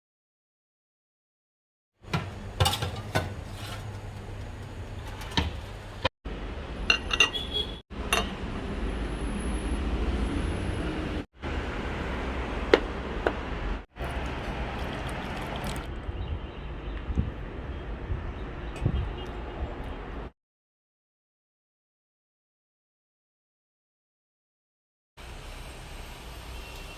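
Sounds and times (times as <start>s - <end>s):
dishes and cutlery clinking: 6.9s - 7.4s, 8.1s - 8.4s.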